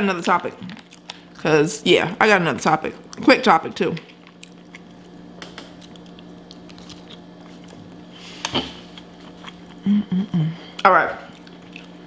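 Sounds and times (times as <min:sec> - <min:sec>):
low steady hum: 0:00.0 - 0:12.0
chewing fries: 0:00.5 - 0:01.5, 0:02.9 - 0:09.9, 0:10.6 - 0:12.0.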